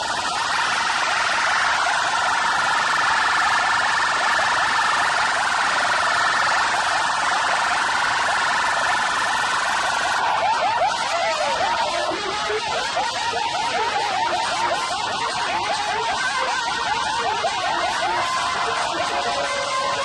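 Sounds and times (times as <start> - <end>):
warbling electronic siren tone: 0.0 - 20.0.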